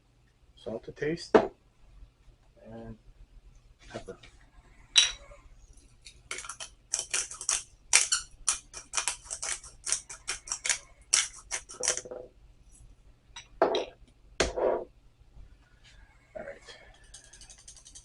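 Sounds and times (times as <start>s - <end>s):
pepper grinder clicking: 6.3s - 12.0s.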